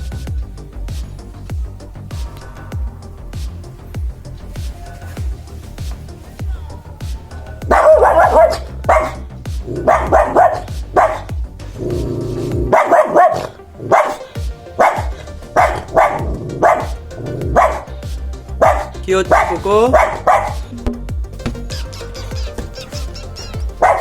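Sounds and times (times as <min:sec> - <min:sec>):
background music with steady beat: 0:00.0 - 0:24.0
dog barking: 0:07.7 - 0:09.2, 0:09.8 - 0:11.3, 0:12.7 - 0:17.9, 0:18.6 - 0:20.7, 0:21.8 - 0:24.0.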